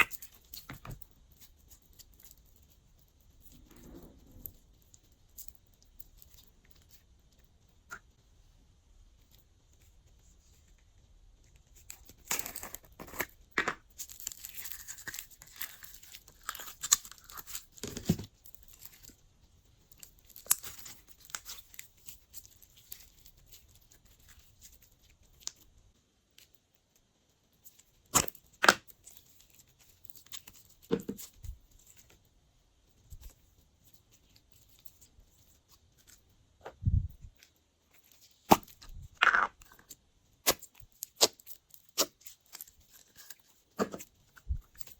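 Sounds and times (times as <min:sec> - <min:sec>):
slime stretching and crackling: 0:11.7 - 0:19.2, 0:38.0 - 0:44.9.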